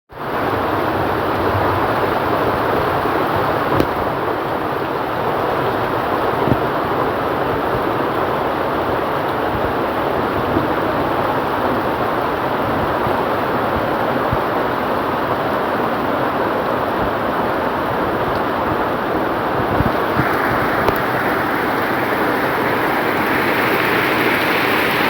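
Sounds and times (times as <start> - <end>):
heavy rain falling: 0.4 - 25.0
sharp taps of raindrops: 19.6 - 25.0.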